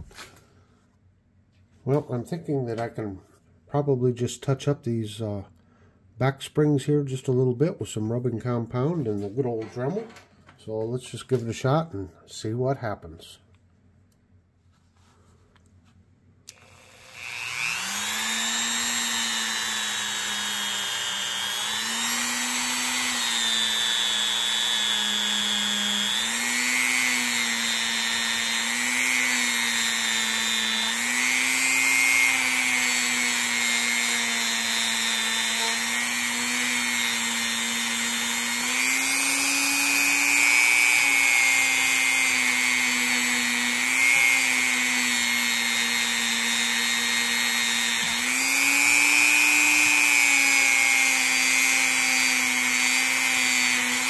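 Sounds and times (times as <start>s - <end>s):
rotary tool motor whine: 16.5s - 54.0s.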